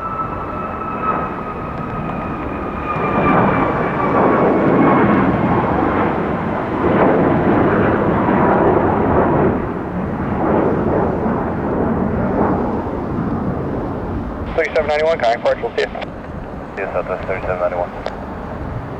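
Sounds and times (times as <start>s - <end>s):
faint high engine whine: 0.0s - 8.0s, 12.2s - 18.9s
jet engines roaring: 0.0s - 18.9s.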